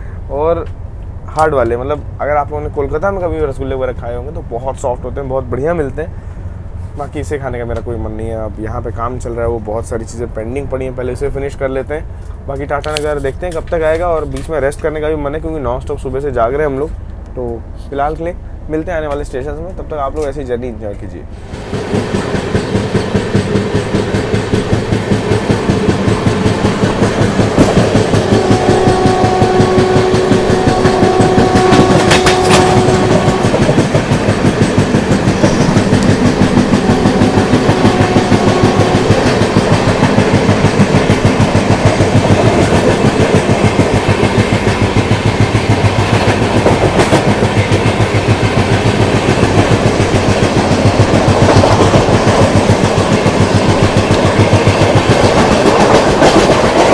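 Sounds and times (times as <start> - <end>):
train wheels clattering: 20.1 - 56.9.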